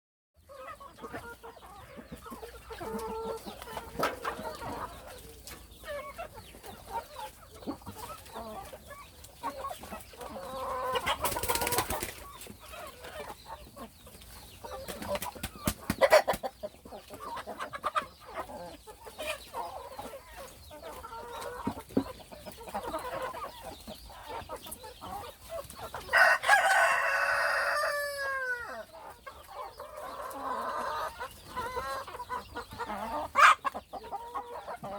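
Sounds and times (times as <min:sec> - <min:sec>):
chickens clucking: 0:00.4 - 0:34.9
rooster crowing: 0:26.1 - 0:28.8.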